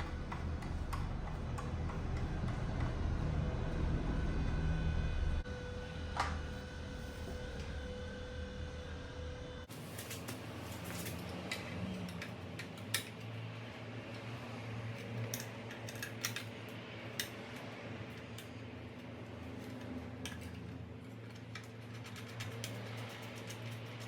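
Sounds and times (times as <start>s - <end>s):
low steady hum: 0.0s - 23.6s
hand tools clicking and clattering: 9.8s - 13.3s, 14.9s - 17.3s, 19.6s - 24.0s.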